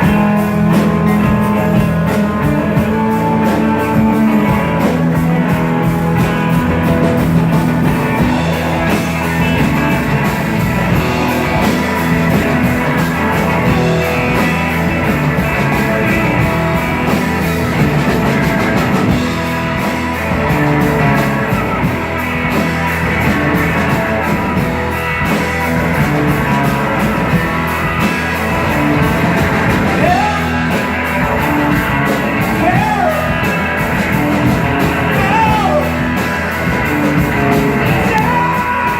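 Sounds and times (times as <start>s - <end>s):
rock band playing: 0.0s - 38.9s
person singing: 30.0s - 31.6s, 32.4s - 33.7s, 35.0s - 36.3s, 37.8s - 38.9s.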